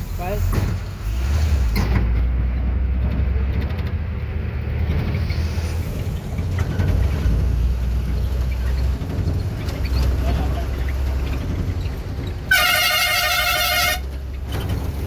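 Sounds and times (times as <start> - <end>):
truck engine and road noise: 0.0 - 15.0.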